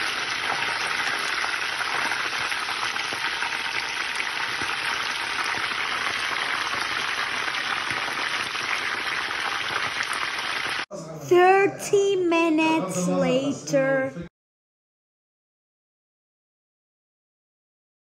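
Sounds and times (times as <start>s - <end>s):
hens sizzling in hot oil: 0.0s - 10.9s.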